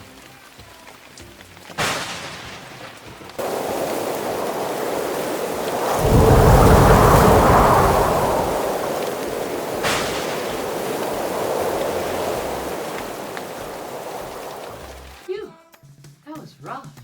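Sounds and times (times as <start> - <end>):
heavy rain: 0.0 - 15.3
rolling thunder rumble: 1.8 - 15.2
thunder crack: 1.8 - 15.2.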